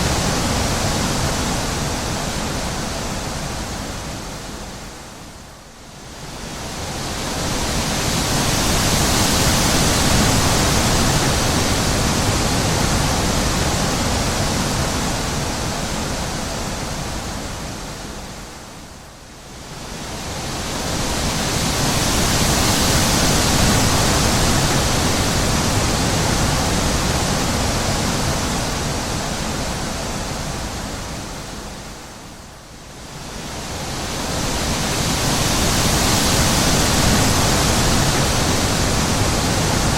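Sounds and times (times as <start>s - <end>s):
wind gusting: 33.1s - 39.9s.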